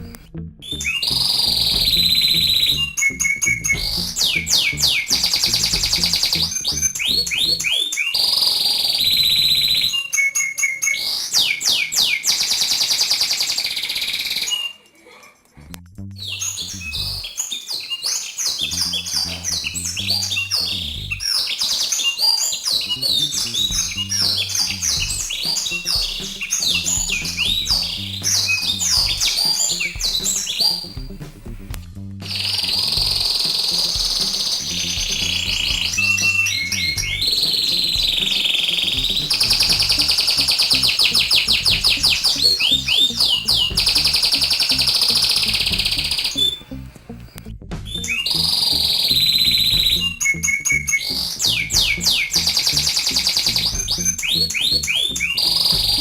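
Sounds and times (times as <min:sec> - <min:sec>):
repeating musical backing: 0:00.0 - 0:07.7, 0:18.6 - 0:21.3, 0:22.6 - 0:56.0
birds chirping: 0:00.0 - 0:56.0.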